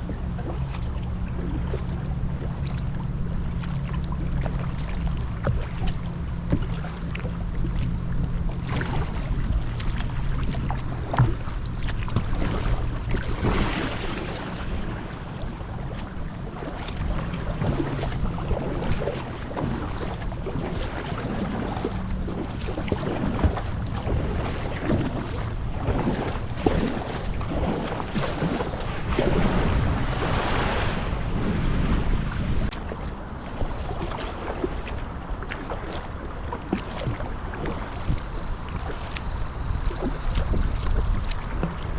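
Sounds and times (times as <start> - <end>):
water splashing around kayak: 0.0 - 41.9
wind rumbling on microphone: 0.0 - 41.9.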